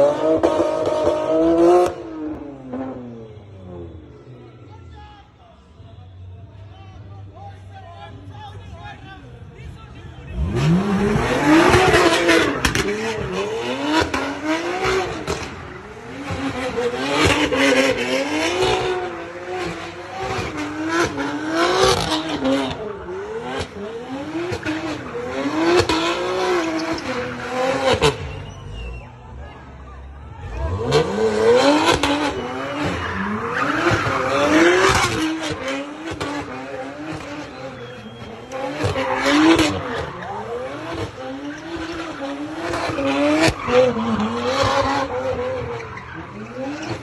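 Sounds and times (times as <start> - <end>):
car engine revving hard: 0.0 - 3.8, 10.3 - 28.6, 30.4 - 47.0
exhaust cracks: 10.3 - 18.0
tyres squealing: 24.2 - 29.3
tyre squeal: 26.5 - 29.3, 30.8 - 35.6, 37.1 - 47.0.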